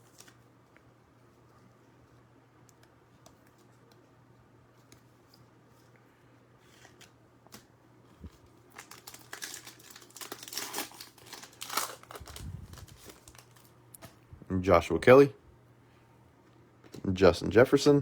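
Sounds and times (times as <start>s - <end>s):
foil wrapper tearing and crinkling: 8.6s - 13.7s.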